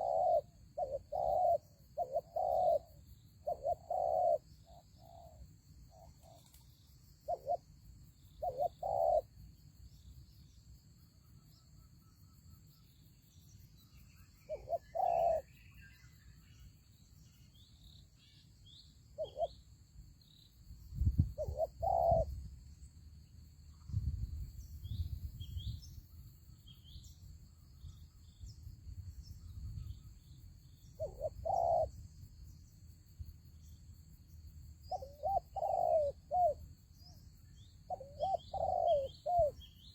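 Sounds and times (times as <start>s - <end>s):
doves cooing: 0.0s - 4.4s, 8.4s - 9.3s, 14.5s - 15.5s, 21.4s - 22.3s, 31.0s - 31.9s, 34.9s - 36.6s, 37.9s - 39.6s
faint small bird chirps: 0.0s - 23.0s, 23.6s - 39.9s.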